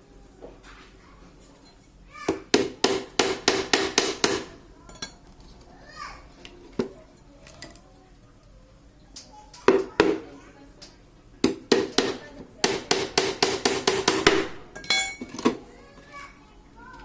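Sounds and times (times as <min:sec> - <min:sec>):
hammer striking nails into wood: 0:02.3 - 0:04.6, 0:11.4 - 0:14.7.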